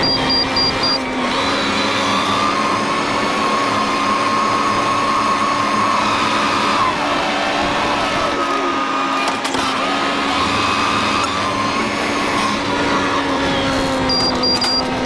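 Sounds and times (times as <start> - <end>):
high beeping: 0.0 - 1.0, 14.1 - 14.9
tractor engine running: 0.0 - 3.3, 6.8 - 15.0.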